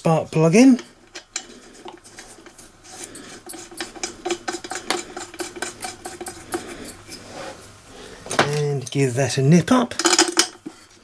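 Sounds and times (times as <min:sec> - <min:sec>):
metallic clicks and scraping: 0:00.8 - 0:07.3.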